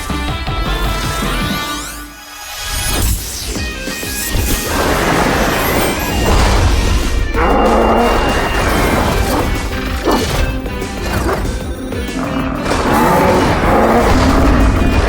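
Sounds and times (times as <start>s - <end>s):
background music: 0.0s - 15.0s
cartoon crashing and clanking impacts: 4.2s - 15.0s.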